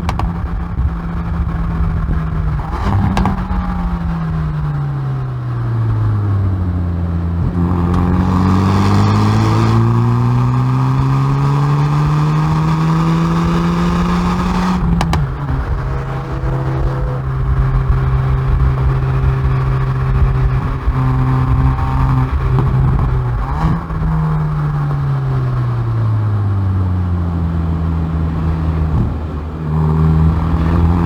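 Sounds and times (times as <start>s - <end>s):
exhaust pops: 0.0s - 4.9s, 7.4s - 10.5s, 12.1s - 24.7s
car engine revving: 0.0s - 31.0s.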